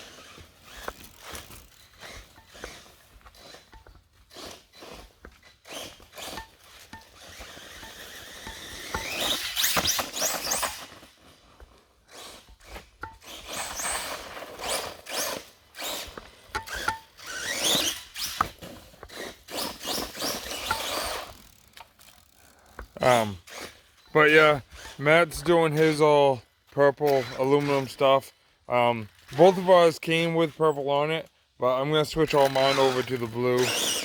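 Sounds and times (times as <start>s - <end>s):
electric motor whining: 7.2s - 10.9s, 13.3s - 23.8s, 32.4s - 34.0s.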